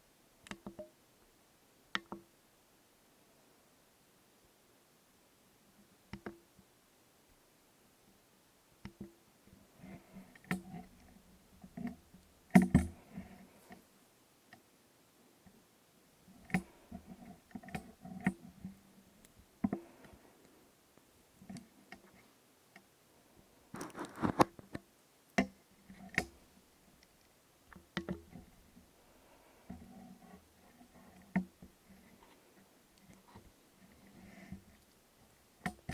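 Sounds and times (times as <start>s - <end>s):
soft handling noise: 23.6s - 35.9s.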